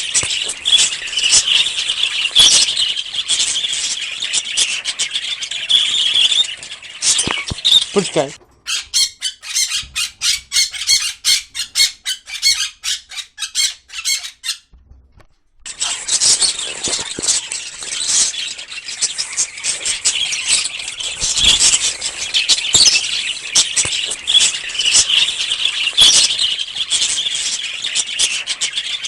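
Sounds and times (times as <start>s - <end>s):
parrot squawking and chirping: 5.7s - 14.7s, 19.8s - 26.7s.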